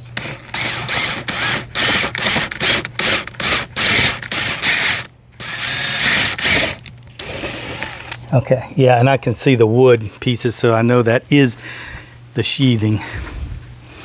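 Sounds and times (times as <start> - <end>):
power drill boring: 0.0 - 8.2.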